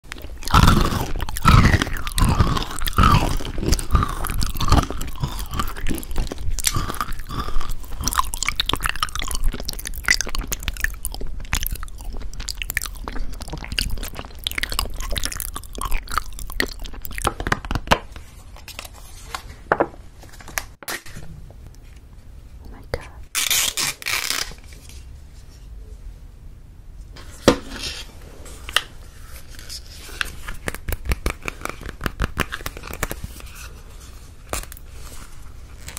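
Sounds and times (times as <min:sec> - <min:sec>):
crunchy chewing: 0:00.1 - 0:17.4.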